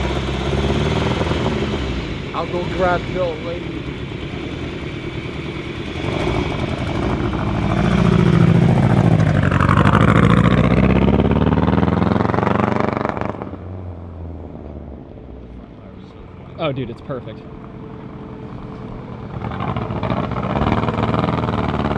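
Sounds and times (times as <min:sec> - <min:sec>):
vehicle engine passing: 0:00.0 - 0:21.9.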